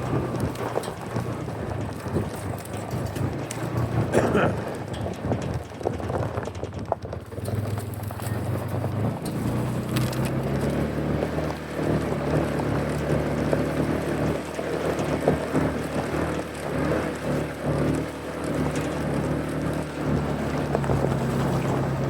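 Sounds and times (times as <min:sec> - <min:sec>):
wind noise on microphone: 0:00.0 - 0:10.4
vehicle engine running: 0:00.0 - 0:22.0.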